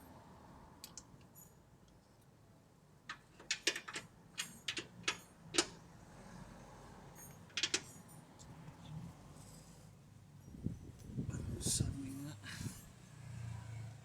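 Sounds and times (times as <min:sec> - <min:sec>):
hand tools clicking and knocking: 0:07.5 - 0:07.9.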